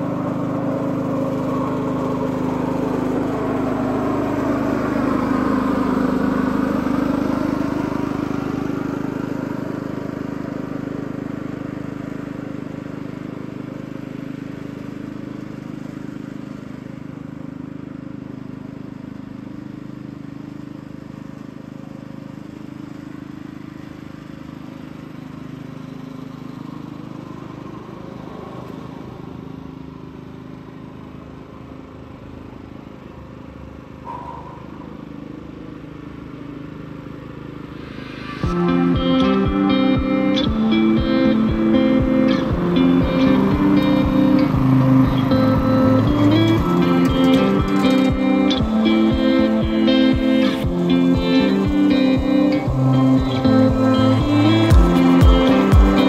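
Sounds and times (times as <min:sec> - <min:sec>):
reel mower motor running: 0:00.0 - 0:34.0, 0:34.9 - 0:56.0.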